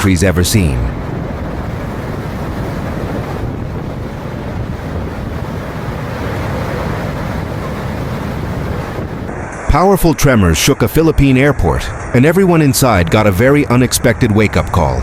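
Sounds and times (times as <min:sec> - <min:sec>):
strong wind buffeting microphone: 0:00.0 - 0:09.5.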